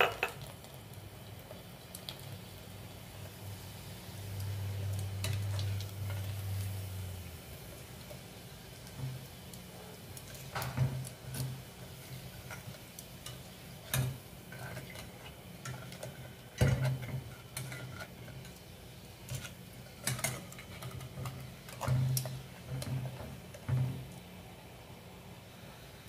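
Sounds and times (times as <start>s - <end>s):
crackers frying in oil: 0.0s - 26.0s
metal tongs clicking against pot: 19.3s - 22.3s.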